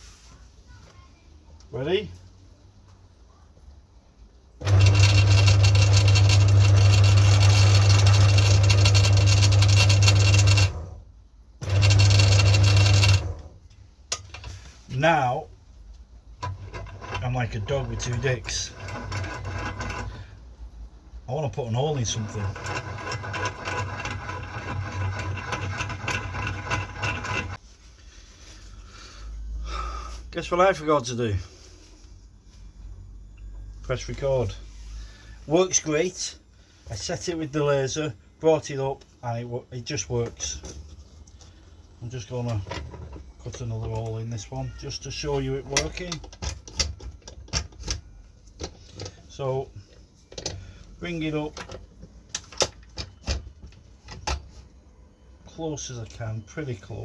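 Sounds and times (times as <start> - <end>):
pillar drill motor humming: 4.6 - 11.0, 11.6 - 13.5.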